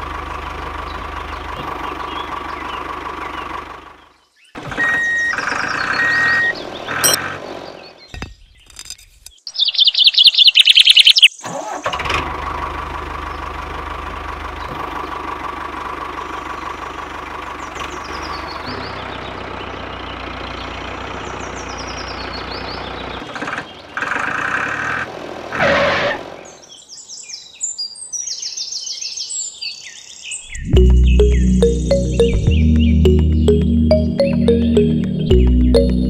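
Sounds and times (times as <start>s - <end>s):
tractor engine running: 0.0s - 7.9s, 11.5s - 25.5s, 30.6s - 36.0s
birds chirping: 0.8s - 11.4s, 16.2s - 24.1s, 26.4s - 36.0s.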